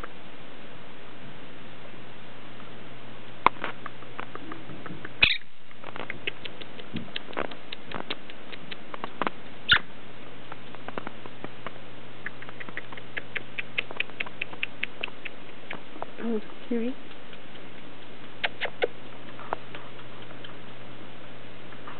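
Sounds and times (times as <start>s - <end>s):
parrot clicking and nibbling: 3.8s - 9.8s, 12.2s - 16.2s, 16.9s - 20.8s.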